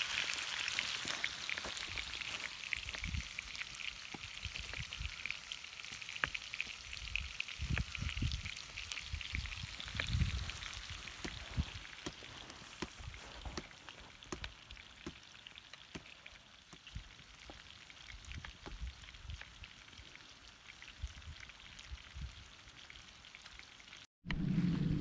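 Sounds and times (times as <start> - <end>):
food sizzling in a frying pan: 0.0 - 24.1
low rumble: 24.3 - 25.0.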